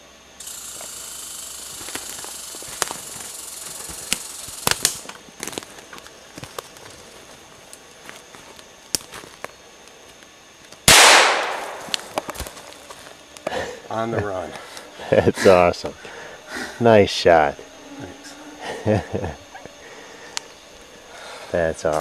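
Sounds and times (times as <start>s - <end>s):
handgun shot: 10.9s - 12.2s.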